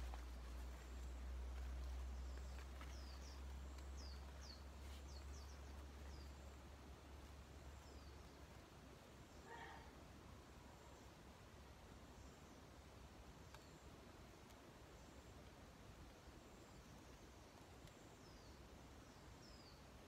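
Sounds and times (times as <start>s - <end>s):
low steady rumble: 0.0s - 13.4s.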